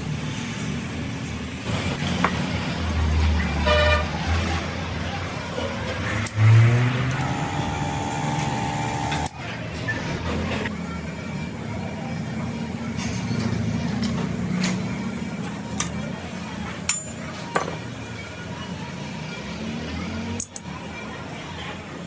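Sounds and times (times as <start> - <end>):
street noise: 0.0 - 22.0
engine hum: 1.6 - 11.0
vehicle horns honking: 3.6 - 4.2.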